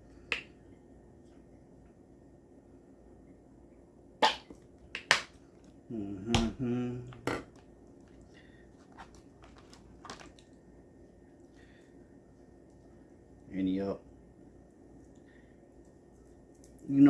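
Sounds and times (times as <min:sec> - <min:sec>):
short wordless vocal sound: 0:05.9 - 0:07.2.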